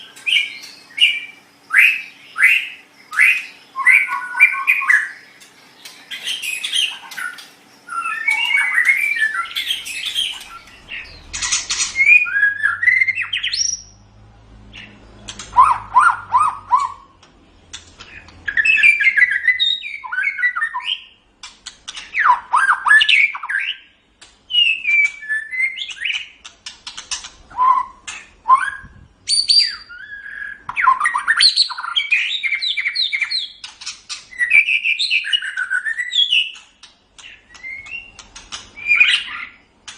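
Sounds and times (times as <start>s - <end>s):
bird singing whistled phrases: 0.0s - 5.3s, 6.1s - 14.0s, 18.5s - 21.2s, 24.5s - 26.4s, 27.5s - 33.6s, 34.3s - 36.6s, 38.8s - 39.6s.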